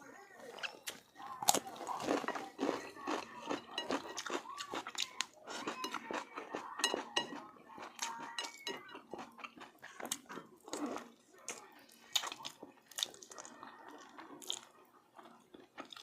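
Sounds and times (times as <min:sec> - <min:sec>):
chewing: 0:00.4 - 0:16.0
dishes and utensils clinking: 0:01.9 - 0:10.6.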